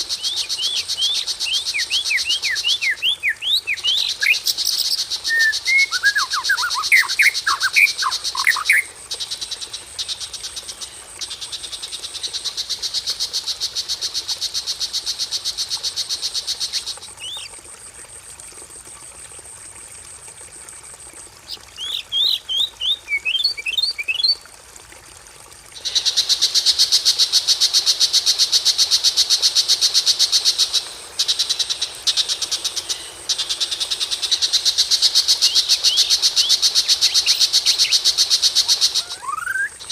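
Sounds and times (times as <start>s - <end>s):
running water: 0.0s - 39.9s
whistled bird song phrases: 5.3s - 8.9s, 39.0s - 39.8s
rapid pulsed bird trills: 35.4s - 39.9s.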